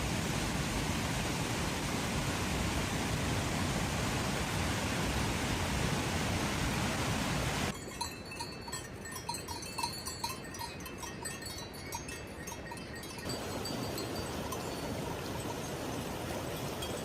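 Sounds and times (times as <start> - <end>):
steady rain: 0.0 - 7.7, 13.3 - 17.0
cowbells clanking: 7.7 - 17.0.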